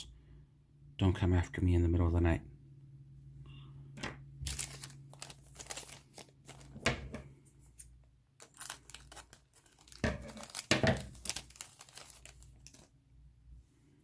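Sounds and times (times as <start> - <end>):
plastic bags crinkling and tearing: 4.4 - 7.1, 8.4 - 12.9.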